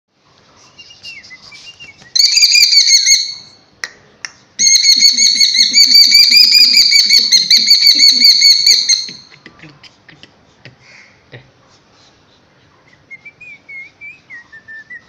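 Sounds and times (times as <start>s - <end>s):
bird chirping: 0.6s - 3.6s, 4.6s - 9.3s.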